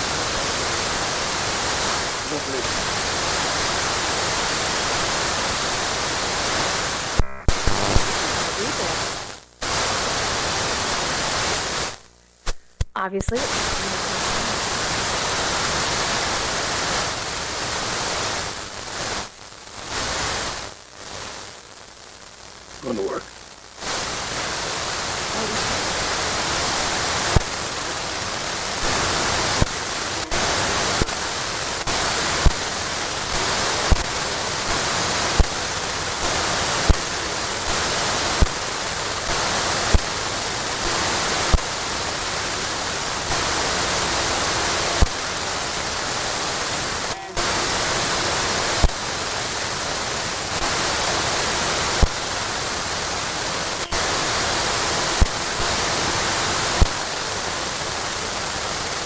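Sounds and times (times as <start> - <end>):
hissing static: 0.0 - 59.0.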